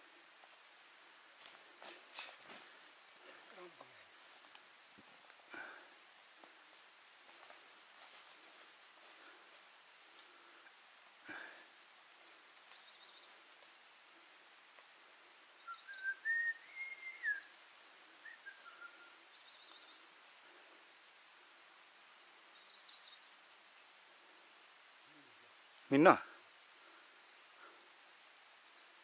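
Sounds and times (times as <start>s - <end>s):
bird whistled phrase: 15.7s - 17.5s.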